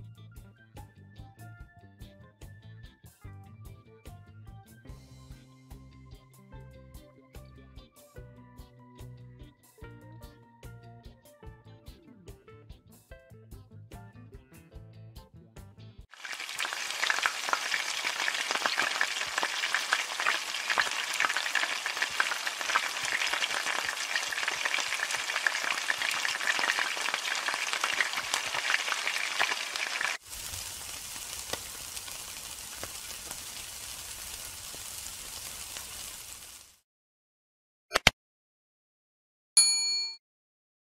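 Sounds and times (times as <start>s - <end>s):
meat sizzling on charcoal grill: 16.1s - 36.8s
oil crackling and sizzling: 16.1s - 36.8s.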